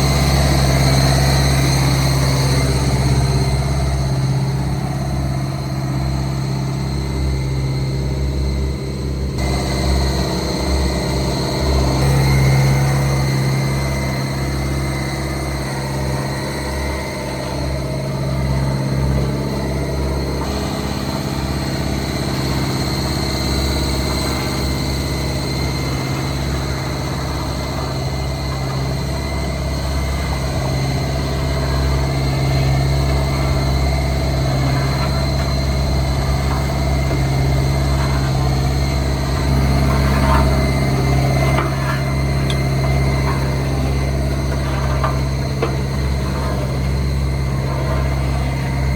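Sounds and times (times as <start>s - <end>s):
diesel engine running at low revs: 0.0s - 48.9s.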